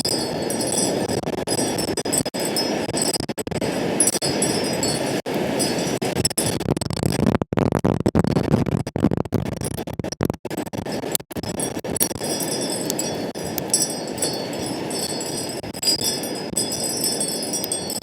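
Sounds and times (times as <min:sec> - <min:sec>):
wind buffeting microphone: 0:00.0 - 0:07.2, 0:12.2 - 0:18.0.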